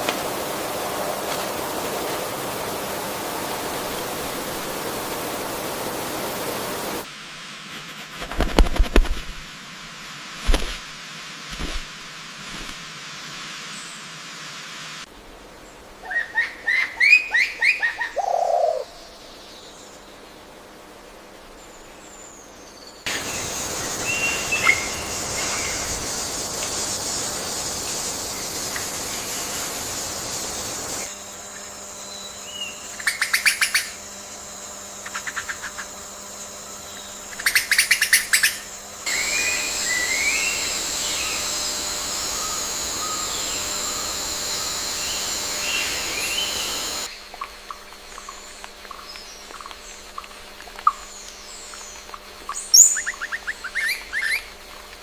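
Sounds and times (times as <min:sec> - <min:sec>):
steady high hiss: 0:00.0 - 0:55.0
bird rapid pulsed trills: 0:23.0 - 0:50.3, 0:50.9 - 0:54.5.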